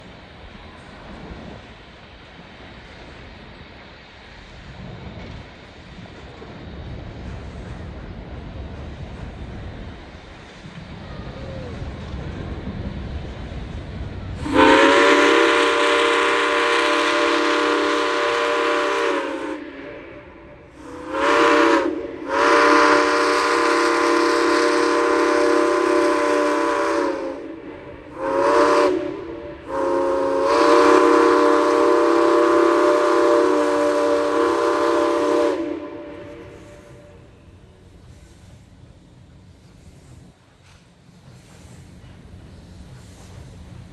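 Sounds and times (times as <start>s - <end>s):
locomotive steam whistle blasts: 14.4s - 37.3s.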